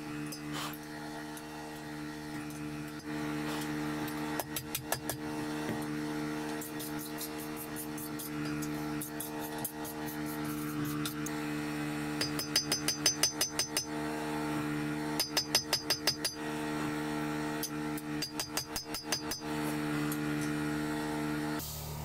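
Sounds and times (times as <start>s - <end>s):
hammer striking metal on anvil: 12.2s - 13.9s, 15.2s - 16.4s, 18.2s - 19.5s.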